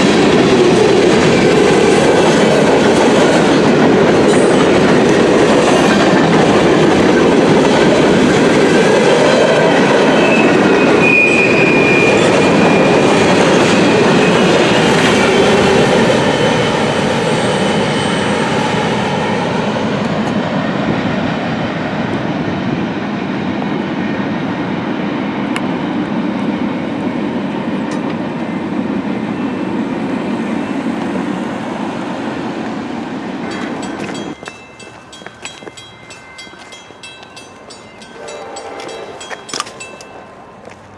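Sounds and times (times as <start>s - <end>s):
clickety-clack over rail joints: 0.0s - 11.2s, 27.8s - 28.6s, 32.5s - 38.2s, 38.8s - 40.9s
high wheel squeal: 9.9s - 18.9s.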